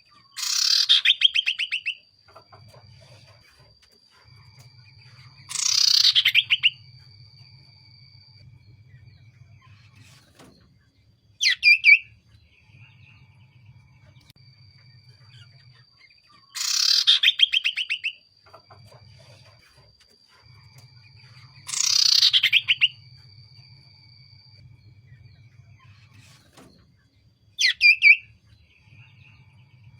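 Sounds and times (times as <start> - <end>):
bird calling in rapid trills: 0.0 - 2.5, 5.4 - 6.8, 15.3 - 18.7, 21.4 - 23.0, 27.6 - 28.3.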